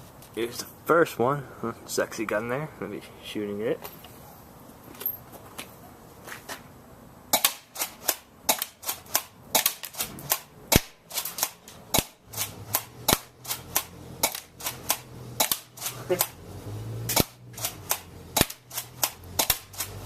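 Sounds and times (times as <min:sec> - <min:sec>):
airsoft shotgun shots snapping: 0:07.3 - 0:16.4, 0:17.1 - 0:20.0.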